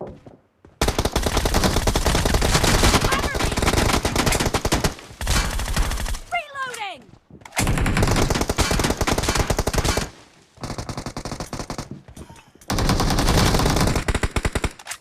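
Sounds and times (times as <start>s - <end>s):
video game automatic gunfire: 0.8s - 6.3s, 7.6s - 11.9s, 12.7s - 14.8s.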